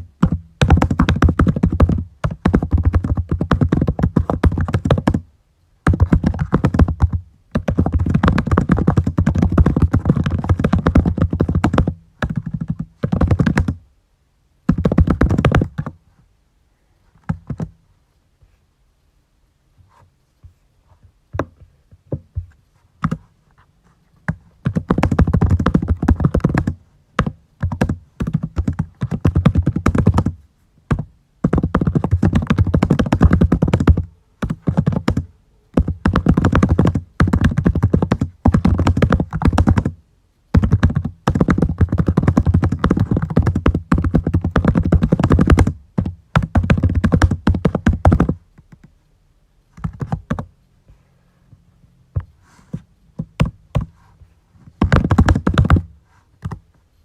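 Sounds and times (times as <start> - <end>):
typing on a computer keyboard: 5.9 - 13.8, 24.6 - 30.3, 30.9 - 39.9, 40.5 - 48.9, 49.8 - 50.5.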